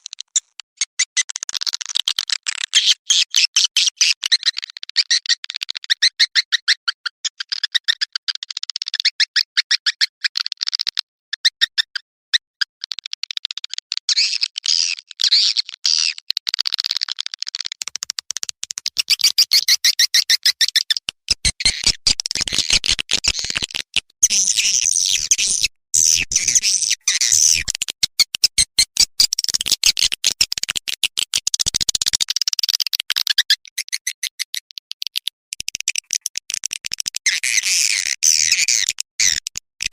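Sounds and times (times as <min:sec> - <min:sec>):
fast even clicks: 0:16.4 - 0:19.8
high twittering bird chirps: 0:19.0 - 0:20.9.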